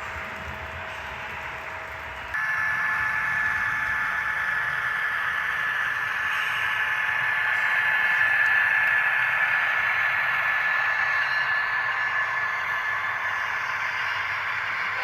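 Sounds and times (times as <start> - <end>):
model train whirring: 0.0 - 15.0.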